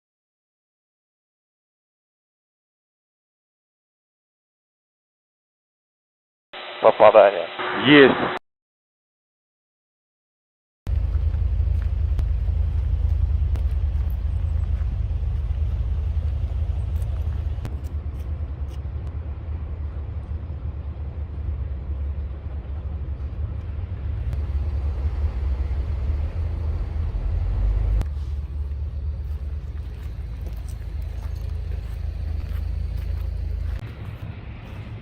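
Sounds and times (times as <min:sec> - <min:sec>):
helicopter rotor rumble: 0:10.9 - 0:35.0.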